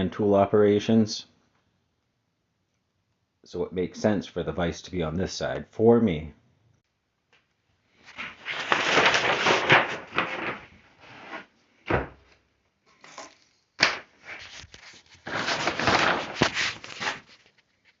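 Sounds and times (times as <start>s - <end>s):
sliding and rubbing: 8.0s - 11.6s, 12.9s - 18.0s.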